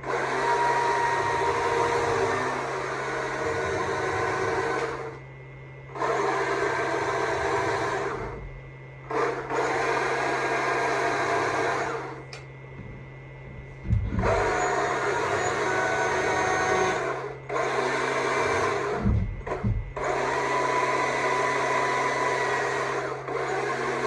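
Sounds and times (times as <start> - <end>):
low thump: 13.8 - 14.5, 19.0 - 20.0.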